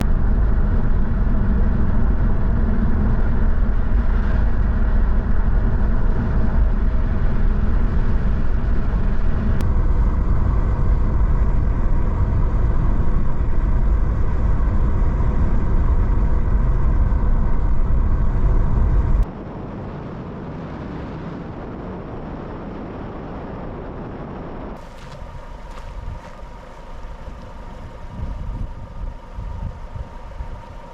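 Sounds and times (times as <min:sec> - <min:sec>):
water noise: 0:00.0 - 0:22.6, 0:24.7 - 0:30.9
wind: 0:00.0 - 0:30.9
outboard motor running: 0:24.8 - 0:30.9.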